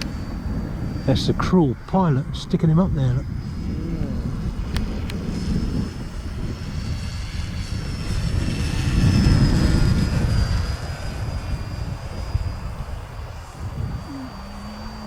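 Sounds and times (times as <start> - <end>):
model plane motor whine: 0.0 - 15.0
wind buffeting microphone: 0.0 - 15.0.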